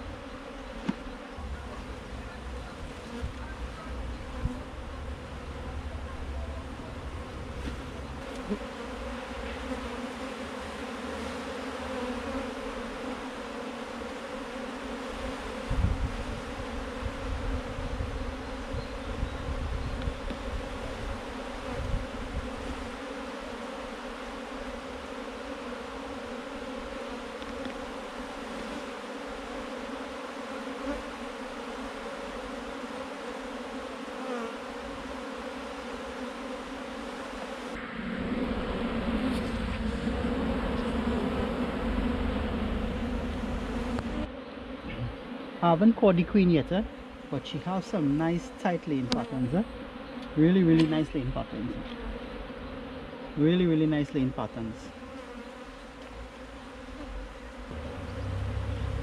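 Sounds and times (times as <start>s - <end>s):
honey bees buzzing: 0.0s - 59.0s
low rumbling: 1.4s - 9.3s, 37.8s - 45.2s, 57.6s - 59.0s.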